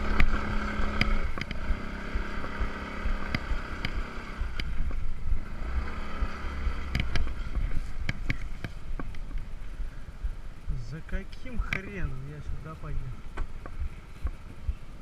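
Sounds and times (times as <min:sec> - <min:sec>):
motor scooter riding: 0:00.0 - 0:10.6
wind buffeting microphone: 0:00.0 - 0:15.0.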